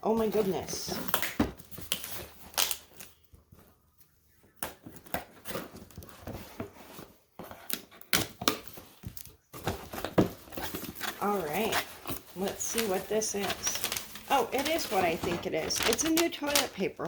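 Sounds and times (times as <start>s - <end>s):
cardboard box being opened: 8.6s - 16.8s.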